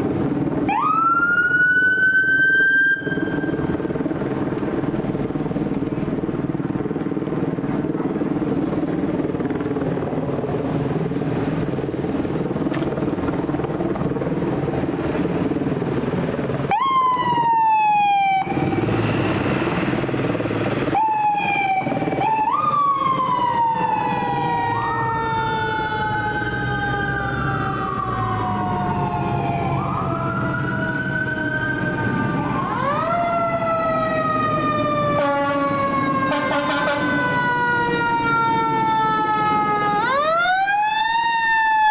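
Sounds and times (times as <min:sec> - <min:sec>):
fire engine running: 0:00.0 - 0:41.9
fire engine sirens wailing: 0:00.0 - 0:41.9
loud noisy horn blast: 0:35.1 - 0:37.3.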